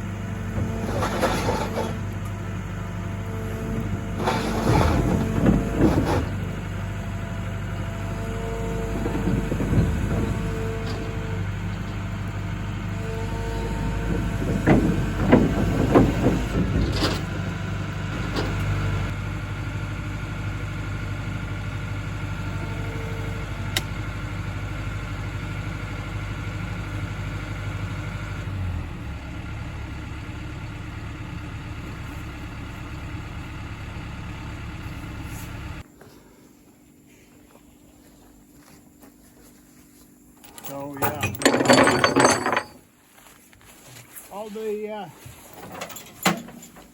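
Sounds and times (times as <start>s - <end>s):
excavator diesel engine running: 0.0s - 37.7s
metallic clanks and knocks: 14.1s - 17.5s, 40.5s - 42.8s, 45.6s - 46.9s.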